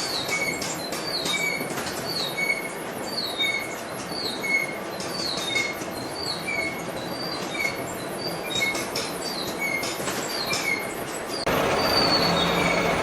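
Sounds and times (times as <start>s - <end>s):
short high squeal: 11.8s - 13.0s.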